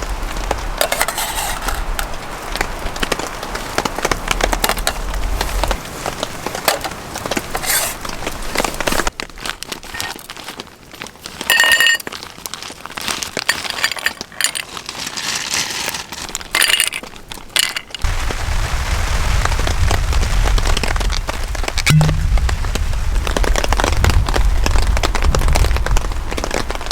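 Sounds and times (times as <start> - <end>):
wind buffeting microphone: 18.0 - 26.9.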